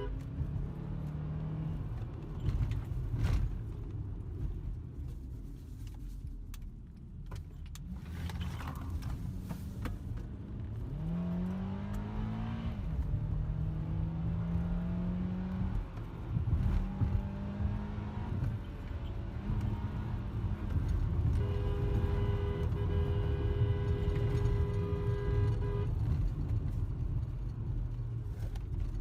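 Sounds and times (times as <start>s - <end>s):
road rumble: 0.0s - 29.0s
car engine accelerating: 10.2s - 21.5s.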